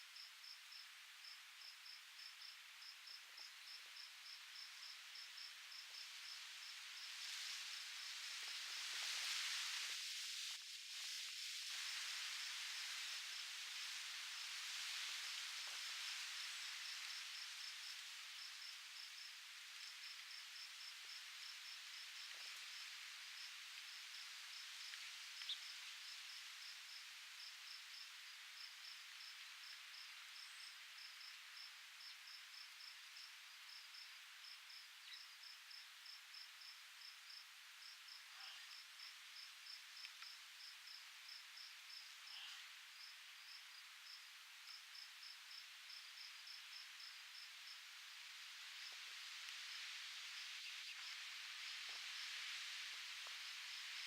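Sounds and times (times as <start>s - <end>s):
soft outdoor breeze: 0.0s - 54.0s
insect chirping in rapid pulses: 11.5s - 49.0s.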